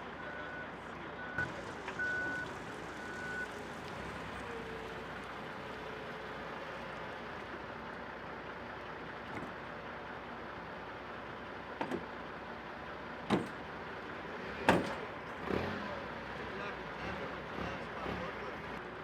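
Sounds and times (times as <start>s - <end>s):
engine and yard noise: 0.0s - 19.0s
vehicle backup alarm beeping: 0.1s - 3.6s.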